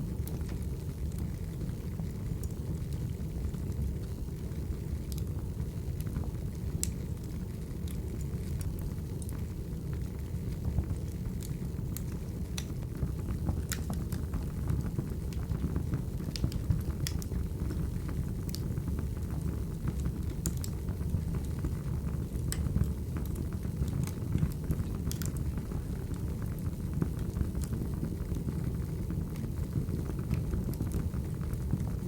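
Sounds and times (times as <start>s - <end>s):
fire flames rumbling: 0.0s - 32.0s
burning logs popping: 10.6s - 32.0s.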